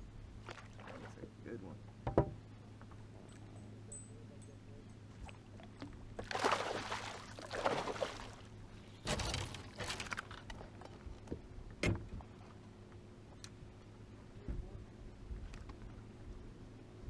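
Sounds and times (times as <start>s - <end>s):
steady low hum: 0.0s - 17.0s
water splashing: 0.4s - 1.3s, 6.2s - 8.5s.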